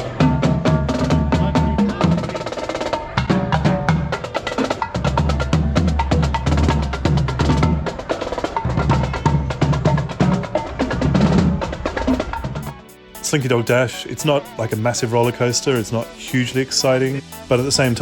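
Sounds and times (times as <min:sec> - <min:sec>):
upbeat percussive music: 0:12.1 - 0:18.0.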